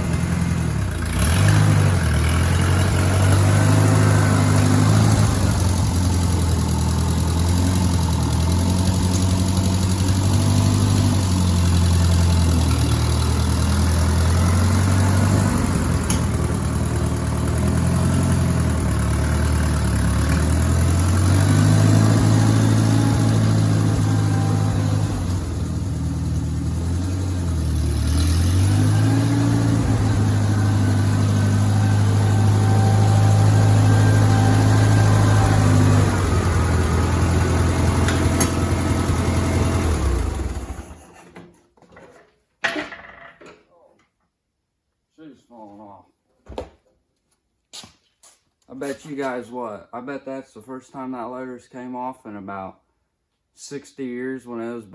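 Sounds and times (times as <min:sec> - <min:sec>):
tractor engine running: 0:00.0 - 0:41.3.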